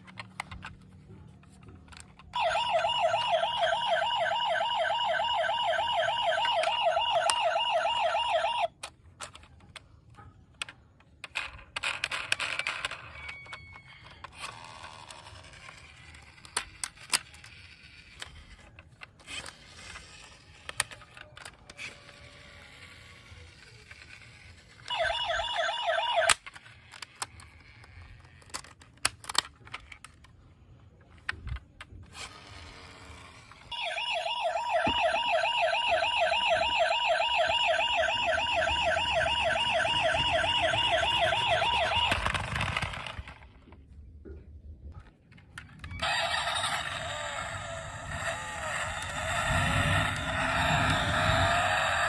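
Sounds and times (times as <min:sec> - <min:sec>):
toy siren warbling: 0:01.9 - 0:08.7, 0:12.8 - 0:15.3, 0:21.4 - 0:27.2, 0:33.6 - 0:43.1, 0:45.8 - 0:52.0
electronic siren-like sound: 0:02.3 - 0:08.7, 0:24.8 - 0:26.4, 0:33.7 - 0:42.8, 0:46.0 - 0:52.0.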